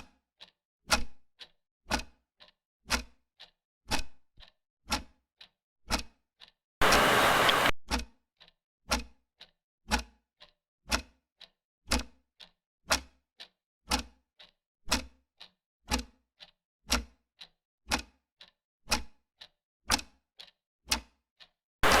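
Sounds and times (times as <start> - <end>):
mechanical clock ticking: 0.4 - 22.0
loud hiss-like noise burst: 6.8 - 7.7.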